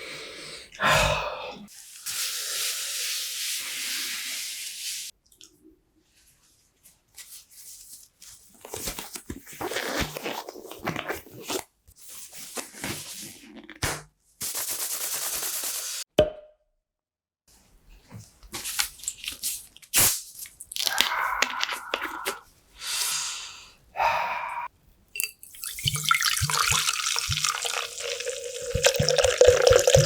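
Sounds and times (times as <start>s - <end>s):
eating sounds: 20.8s - 22.5s, 26.5s - 30.0s.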